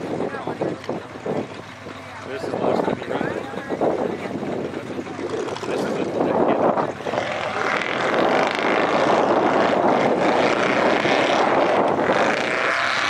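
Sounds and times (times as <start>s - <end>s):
truck engine revving high: 4.9s - 13.0s.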